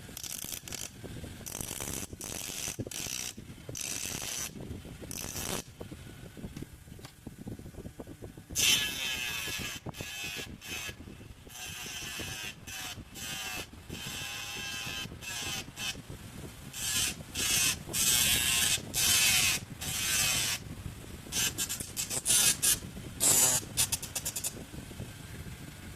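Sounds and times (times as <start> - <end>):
mini grinder motor whining: 0.0 - 5.7, 8.6 - 16.0, 16.7 - 20.6, 21.3 - 24.6.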